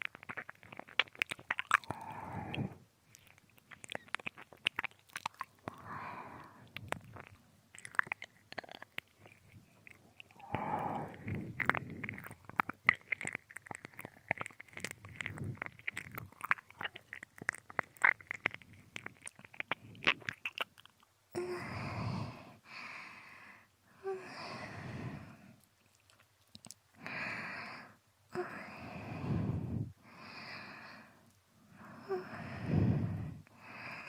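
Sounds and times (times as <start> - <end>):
wet mouth clicks and smacks: 0.0 - 5.9, 6.6 - 21.1, 25.6 - 26.9
slow breaths into microphone: 28.7 - 31.3, 32.2 - 33.4.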